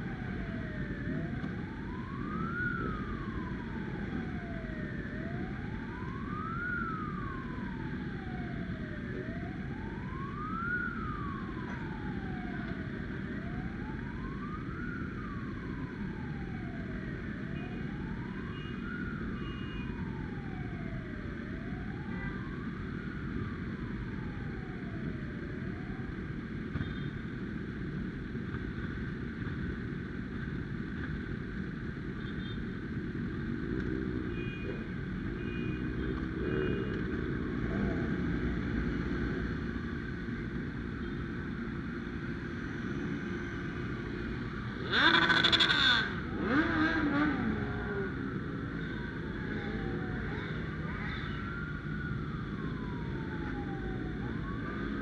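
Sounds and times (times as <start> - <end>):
siren wailing: 0.0 - 27.1, 33.7 - 55.0
road and wind noise: 0.0 - 55.0
loud engine rev: 45.0 - 47.6.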